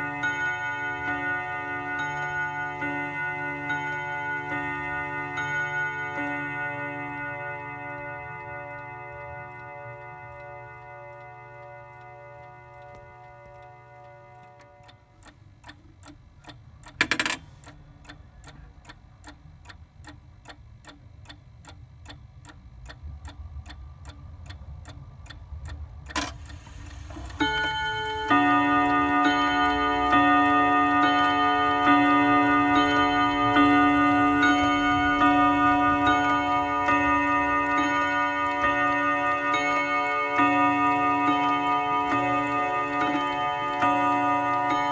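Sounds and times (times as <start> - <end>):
clock chiming bim-bam: 0.0 - 15.1, 17.0 - 17.5, 26.1 - 44.9
clock ticking: 0.0 - 44.9.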